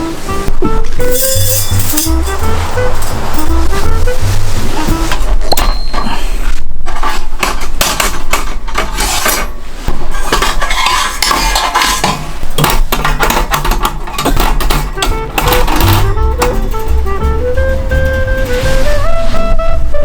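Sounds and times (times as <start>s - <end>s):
metal cookware clattering: 1.0s - 3.6s, 7.4s - 17.0s.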